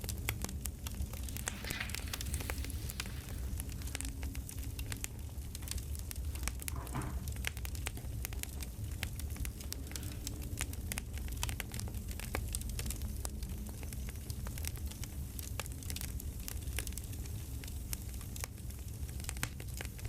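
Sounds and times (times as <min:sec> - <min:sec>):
campfire crackling: 0:00.0 - 0:20.0
brief rustle: 0:01.2 - 0:04.0.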